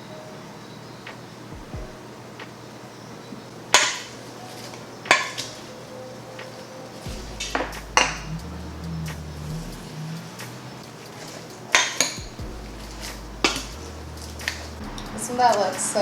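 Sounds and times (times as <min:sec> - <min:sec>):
utensils clinking on cookware: 0:10.9 - 0:13.8.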